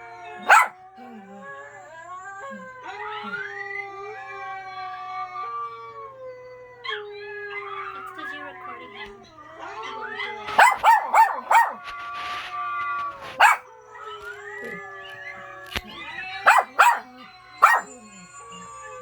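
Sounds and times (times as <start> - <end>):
dog howling: 0.0 - 19.0
dog barking: 0.3 - 1.2, 9.8 - 18.2.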